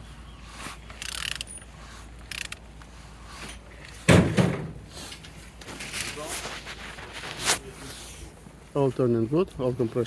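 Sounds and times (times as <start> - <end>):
loud thump: 4.1 - 4.8.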